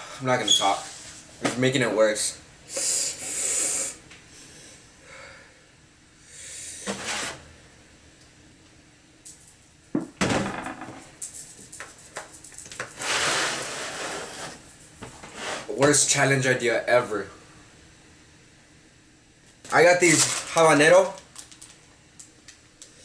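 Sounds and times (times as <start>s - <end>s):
man breathing hard: 2.7s - 6.8s.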